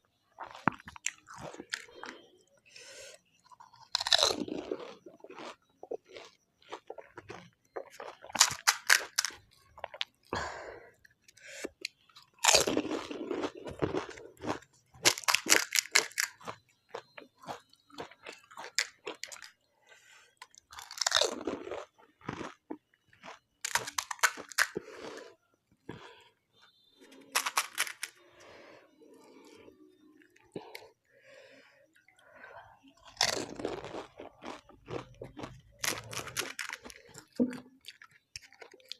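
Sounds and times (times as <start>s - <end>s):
crunching and chewing crisp shells: 0.0s - 38.9s.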